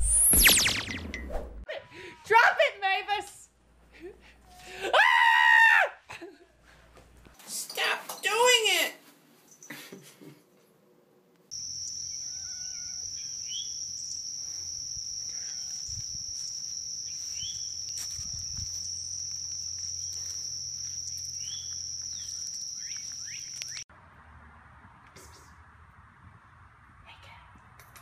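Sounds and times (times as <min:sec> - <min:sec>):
insects droning: 0:11.5 - 0:23.8
short bird chirps: 0:11.5 - 0:23.8.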